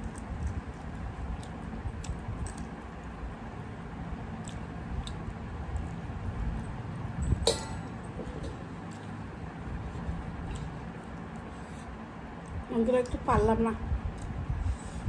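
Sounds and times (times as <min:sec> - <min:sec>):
person chewing rice: 0:00.0 - 0:06.8
hand clinking metal plate: 0:07.3 - 0:08.7.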